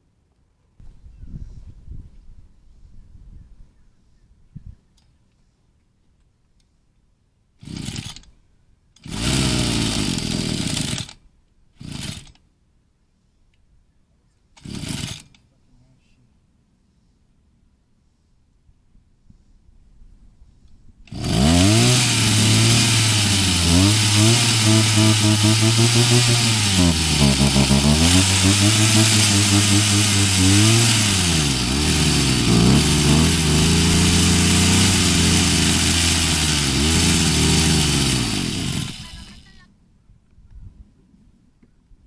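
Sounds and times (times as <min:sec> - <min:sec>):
small engine revving: 0:07.6 - 0:08.3, 0:09.0 - 0:11.2, 0:11.8 - 0:12.4, 0:14.6 - 0:15.4, 0:21.1 - 0:39.6.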